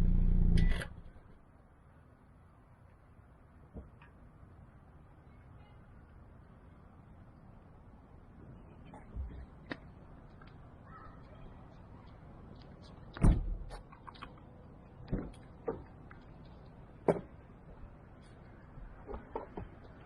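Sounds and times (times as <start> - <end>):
sharp knocks and clunks: 17.0 - 17.4.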